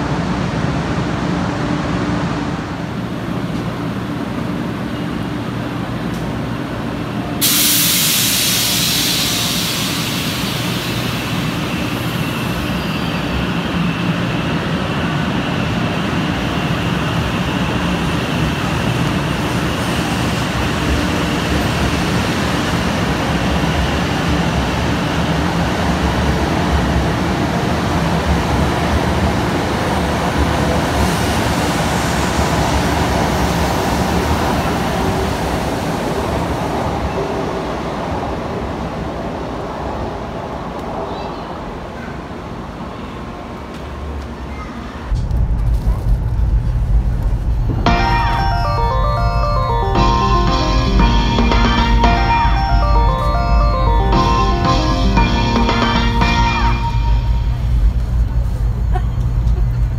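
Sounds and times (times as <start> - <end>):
compressed air hiss: 7.4 - 11.4
train equipment hum: 45.1 - 59.9.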